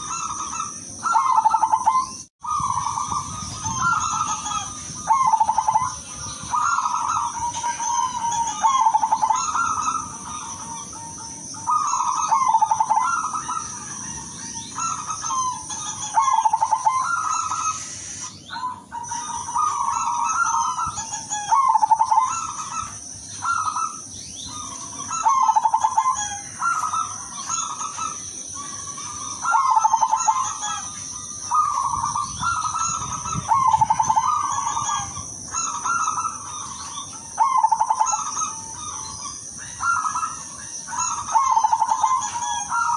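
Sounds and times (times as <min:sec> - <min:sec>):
dove cooing: 0:00.0 - 0:42.9.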